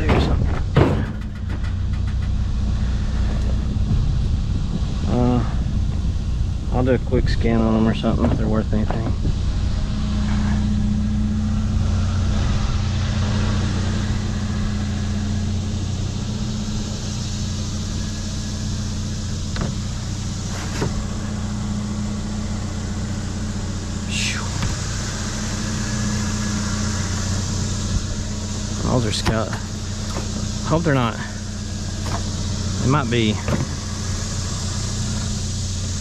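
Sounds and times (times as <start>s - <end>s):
vehicle engine humming: 0.0s - 36.0s.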